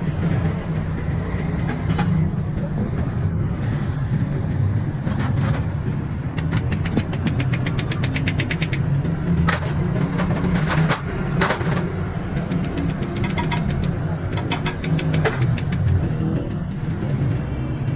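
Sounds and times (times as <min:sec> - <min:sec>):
motorcycle engine running: 0:05.9 - 0:17.9
sharp clicks: 0:06.4 - 0:08.9, 0:10.7 - 0:16.7
rapid ticking: 0:06.4 - 0:09.0, 0:12.2 - 0:17.0.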